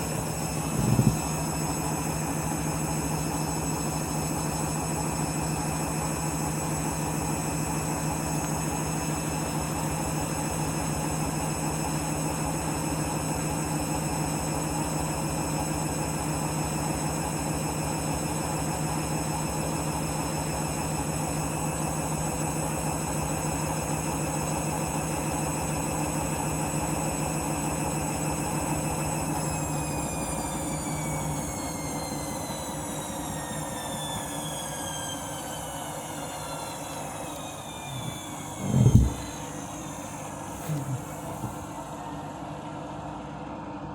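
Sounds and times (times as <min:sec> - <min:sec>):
motor whine: 0:00.0 - 0:10.9, 0:29.2 - 0:42.8
washing machine spinning: 0:00.0 - 0:43.3.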